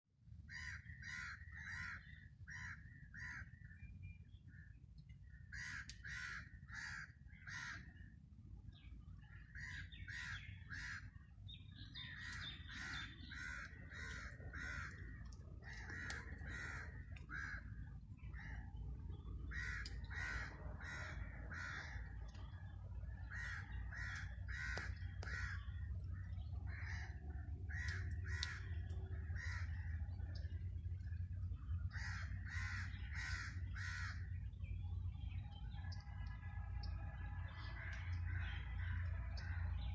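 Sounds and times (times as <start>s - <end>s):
steady low rumble: 0.2s - 39.9s
birds calling: 0.4s - 39.9s.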